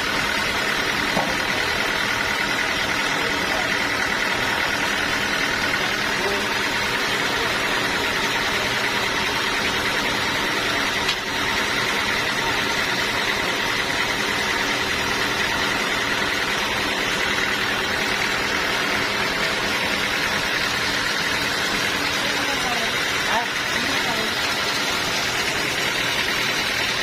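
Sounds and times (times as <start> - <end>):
sawmill machinery droning: 0.0 - 27.0.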